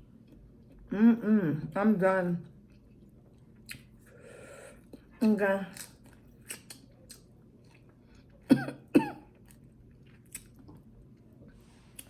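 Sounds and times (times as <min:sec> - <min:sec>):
woman coughing: 0:08.5 - 0:09.3.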